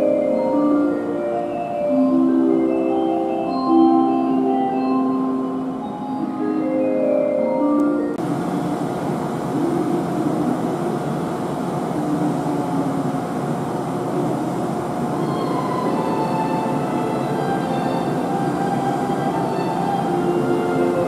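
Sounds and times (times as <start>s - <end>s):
station chime melody: 0.0s - 8.2s
electric train rumbling into platform: 0.0s - 21.0s
faint steady whine: 0.0s - 21.0s.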